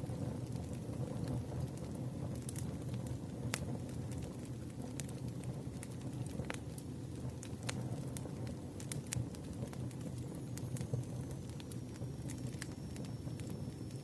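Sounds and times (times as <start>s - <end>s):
campfire pops and snaps: 0.0s - 14.0s
low hiss of burning wood: 0.0s - 14.0s.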